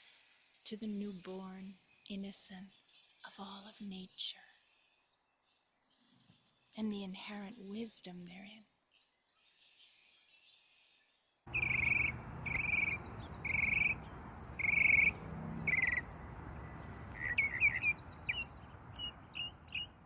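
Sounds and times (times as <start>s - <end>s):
birds calling: 11.5s - 20.0s.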